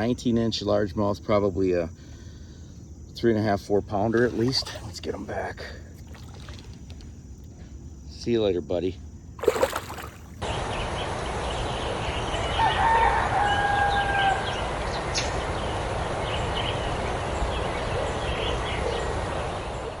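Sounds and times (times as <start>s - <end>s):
rooster crowing: 12.5s - 14.6s.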